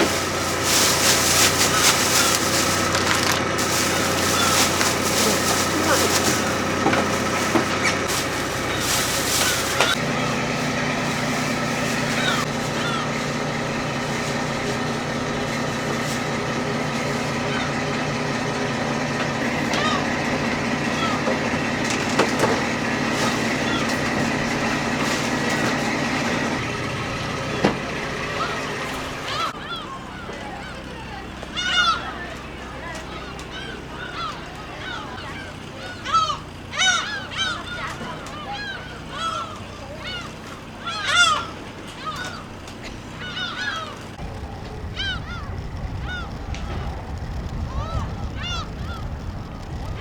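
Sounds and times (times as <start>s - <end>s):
machine hum: 0.0s - 29.8s, 31.6s - 50.0s
gulls calling: 0.0s - 50.0s
low rumble: 44.2s - 50.0s.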